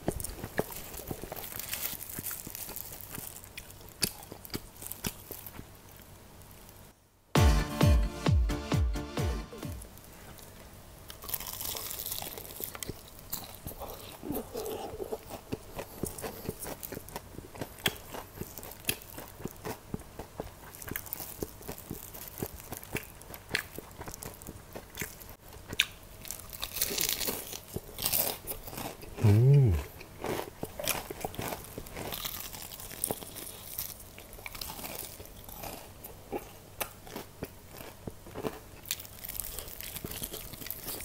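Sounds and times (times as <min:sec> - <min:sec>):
chewing with crisp crunches: 0:00.0 - 0:06.8, 0:10.2 - 0:41.0
crunchy bite into fried chicken: 0:11.1 - 0:41.0.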